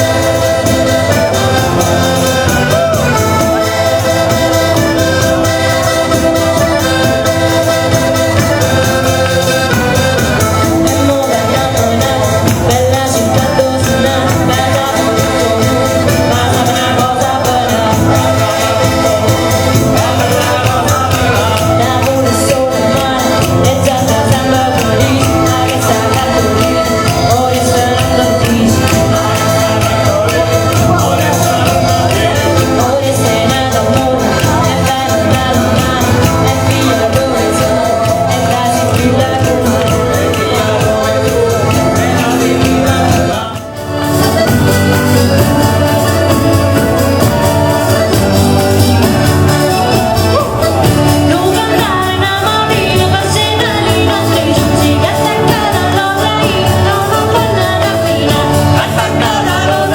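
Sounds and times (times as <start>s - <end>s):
accordion: 0.0s - 59.9s
frame drums: 0.0s - 59.9s
guitar: 0.0s - 59.9s
person singing: 0.0s - 59.9s.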